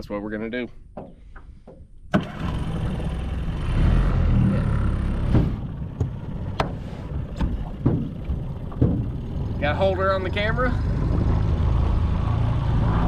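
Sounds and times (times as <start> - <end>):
sharp knocks: 0.9 - 1.9, 5.3 - 9.4
outboard motor running: 2.2 - 12.2.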